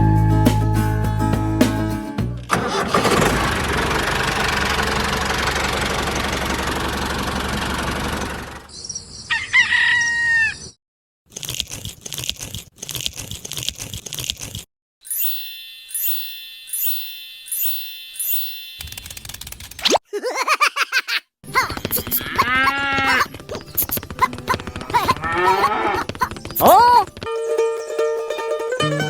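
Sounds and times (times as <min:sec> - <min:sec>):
rooster crowing: 0:09.3 - 0:10.8
chime-like notes: 0:15.0 - 0:19.1
rapid clicking: 0:18.8 - 0:19.9, 0:23.3 - 0:25.3.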